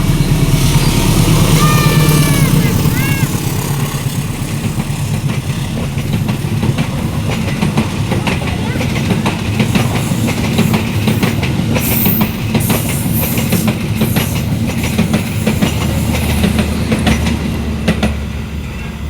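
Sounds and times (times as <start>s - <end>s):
low train rumble: 0.0s - 19.0s
train wheels clacking over rail joints: 0.0s - 19.0s.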